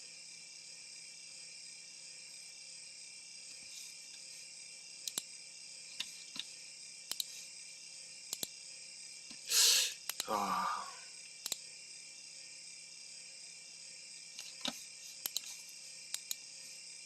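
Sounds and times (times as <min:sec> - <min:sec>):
steady high-pitched hiss: 0:00.0 - 0:17.0
computer mouse double-clicks: 0:05.0 - 0:05.2, 0:07.1 - 0:07.3, 0:08.3 - 0:08.5, 0:10.0 - 0:10.2, 0:14.4 - 0:16.4.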